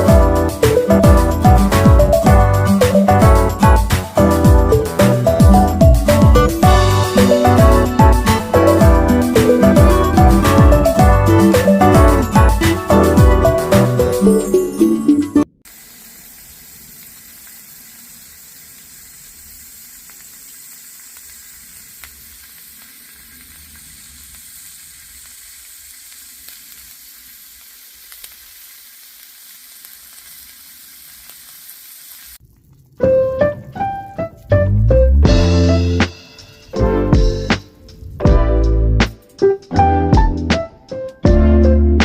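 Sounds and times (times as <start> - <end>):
background music: 0.0 - 15.5, 33.0 - 42.0
food sizzling in a pan: 15.7 - 32.4.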